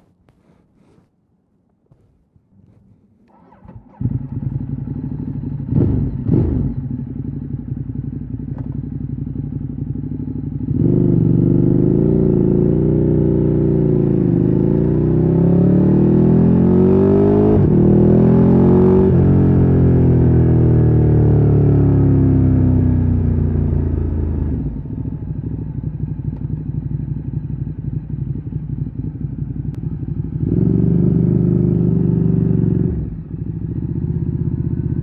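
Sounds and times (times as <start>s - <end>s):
motorcycle engine revving: 2.7s - 35.0s
motorcycle starter turning: 3.3s - 4.6s.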